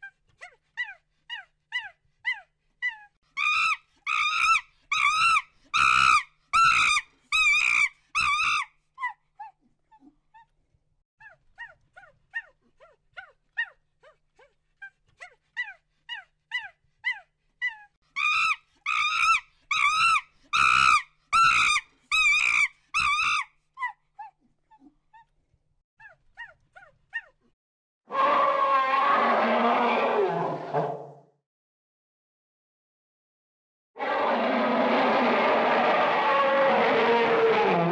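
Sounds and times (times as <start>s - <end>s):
animal yelping: 15.6s - 25.3s, 34.0s - 37.9s.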